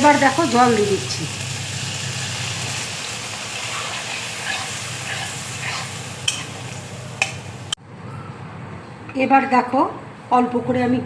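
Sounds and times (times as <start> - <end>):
curry sizzling in a pan: 0.0 - 7.8
spoon scraping a pan: 2.2 - 7.8.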